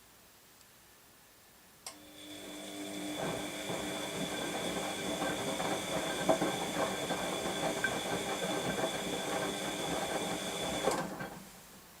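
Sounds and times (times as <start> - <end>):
click: 1.8 - 2.0
washing machine motor whine: 1.9 - 11.5
washing machine rattling: 2.4 - 11.6.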